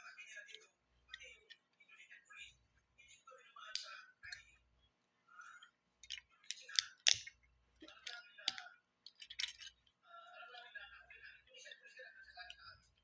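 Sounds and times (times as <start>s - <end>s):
plastic bricks clicking: 3.7s - 4.4s, 6.0s - 9.8s.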